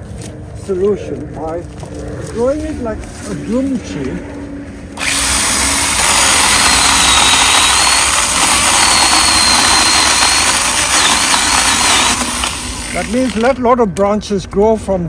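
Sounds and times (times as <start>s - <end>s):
battery pruning saw cutting wood: 5.0s - 13.6s.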